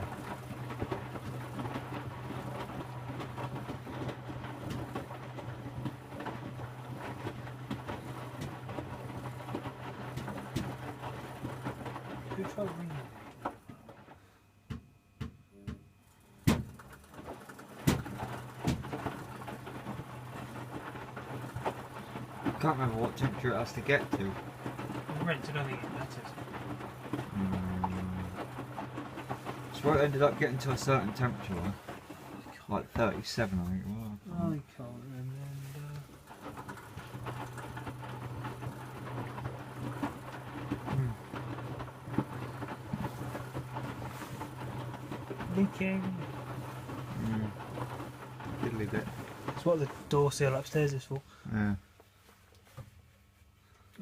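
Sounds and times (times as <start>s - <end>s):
water and wet laundry sloshing: 0.0s - 14.2s, 16.1s - 51.4s
low motor hum: 0.0s - 51.8s
washing machine knocks: 14.7s - 19.4s.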